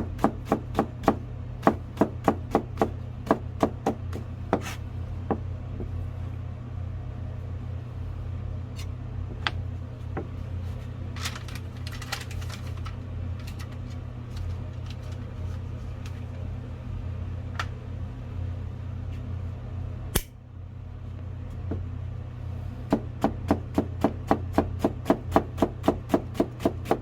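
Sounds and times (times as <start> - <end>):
knife chopping on cutting board: 0.0 - 5.4, 22.9 - 27.0
steady low hum: 0.0 - 27.0.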